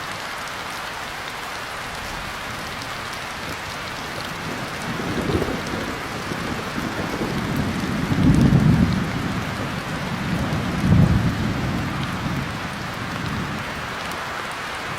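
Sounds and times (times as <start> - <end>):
rain pattering: 0.0 - 14.9
rolling thunder rumbles: 3.3 - 14.1.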